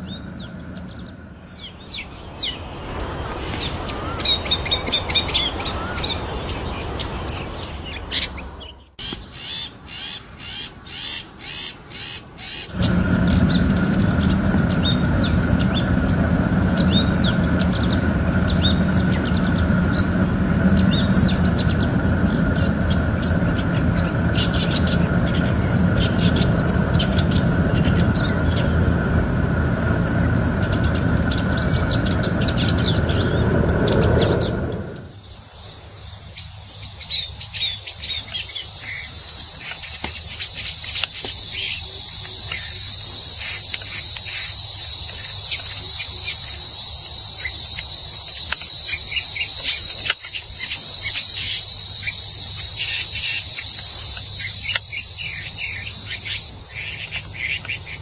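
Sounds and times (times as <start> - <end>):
steady low rumble: 0.0 - 1.6, 12.7 - 35.2
high insect-like hiss: 12.7 - 58.0.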